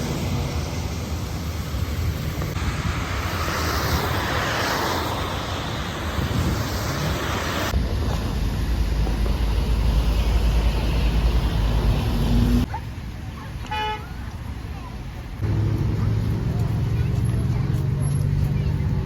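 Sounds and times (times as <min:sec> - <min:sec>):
heavy rain: 0:00.0 - 0:12.4
wind rumble on microphone: 0:00.6 - 0:12.7.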